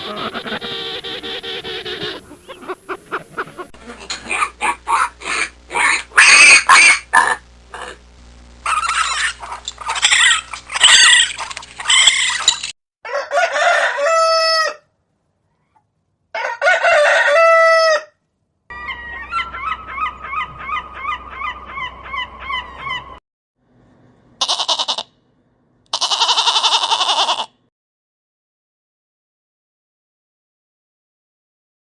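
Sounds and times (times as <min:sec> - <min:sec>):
hen clucking: 0:00.0 - 0:08.0, 0:08.7 - 0:12.7, 0:18.7 - 0:23.2
short chicken calls: 0:03.8 - 0:07.4, 0:24.4 - 0:25.2, 0:25.9 - 0:27.6
rooster crowing: 0:13.0 - 0:14.9, 0:16.3 - 0:23.0.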